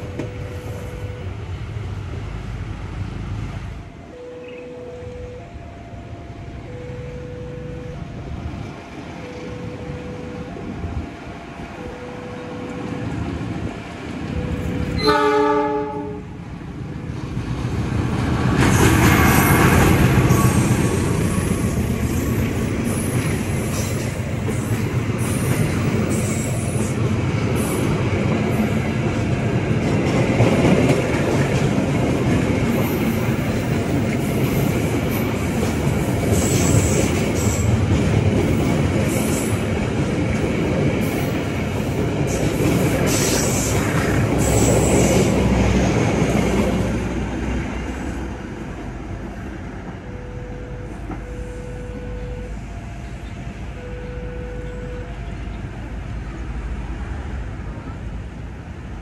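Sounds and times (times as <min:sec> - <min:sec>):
train passing rumble: 0:00.0 - 0:59.0
train horn blast: 0:14.9 - 0:16.4
wheels clicking over rail joints: 0:17.7 - 0:47.4.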